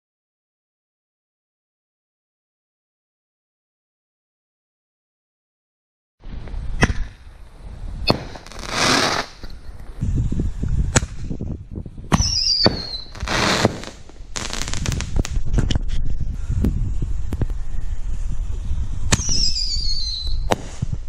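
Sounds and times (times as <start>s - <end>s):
firework crackling: 7.7s - 9.5s, 12.1s - 15.6s, 16.9s - 21.0s
firework bangs: 8.0s - 9.4s, 12.1s - 15.5s, 19.1s - 21.0s
firework whistle falling: 12.1s - 13.9s, 19.1s - 20.8s.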